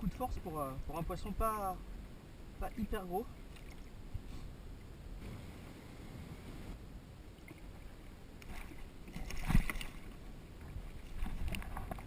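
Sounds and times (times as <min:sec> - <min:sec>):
water sloshing against a kayak: 0:00.0 - 0:12.0
water splashing: 0:03.4 - 0:04.0, 0:07.4 - 0:12.0.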